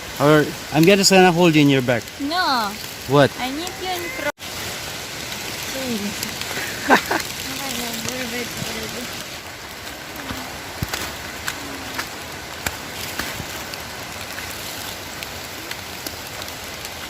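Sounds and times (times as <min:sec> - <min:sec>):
rain hissing: 0:00.0 - 0:17.0
waterfall rushing: 0:00.0 - 0:17.0.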